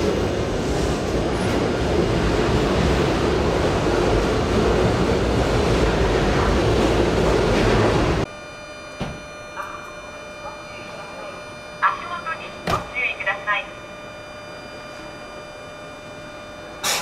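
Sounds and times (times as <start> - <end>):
electric train rumbling on rails: 0.0 - 8.3.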